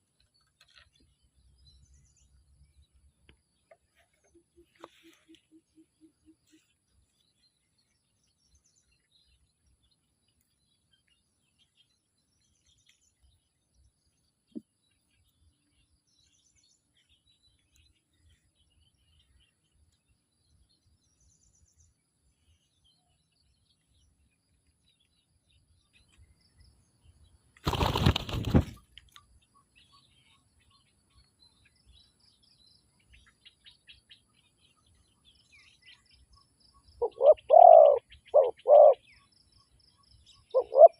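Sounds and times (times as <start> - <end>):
faint high bird chirps: 0.0 - 40.9
wings flapping: 27.6 - 28.8.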